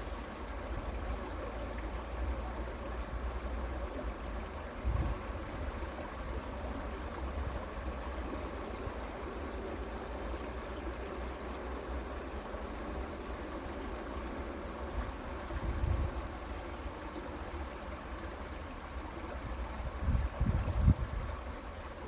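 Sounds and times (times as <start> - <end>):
creek water running: 0.0 - 22.0.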